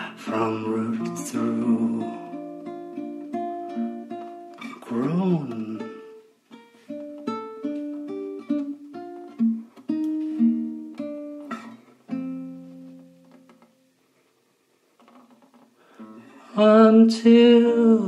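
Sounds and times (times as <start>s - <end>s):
acoustic guitar picking: 0.0s - 14.0s.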